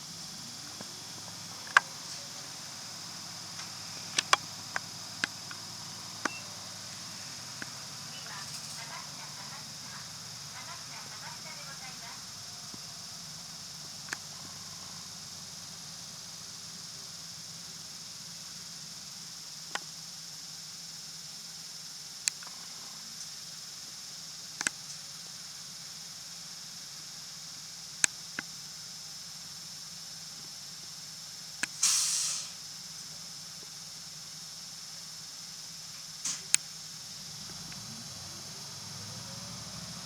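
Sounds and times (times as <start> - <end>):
bus interior hum: 0.0 - 17.8, 36.2 - 40.0
sharp clicks and rattles: 0.3 - 9.0
short hissing burst: 31.7 - 32.6, 36.2 - 36.6.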